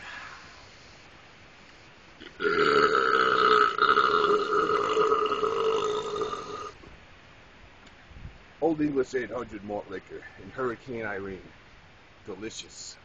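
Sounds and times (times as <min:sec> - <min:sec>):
long loud burp: 0:02.2 - 0:06.8.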